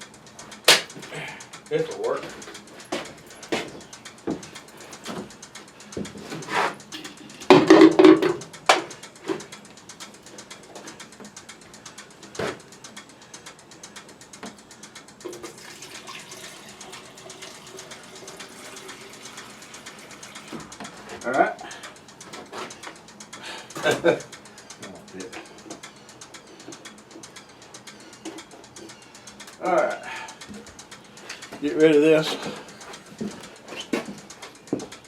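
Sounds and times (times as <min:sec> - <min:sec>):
small parts clicking and knocking: 0:00.0 - 0:15.8.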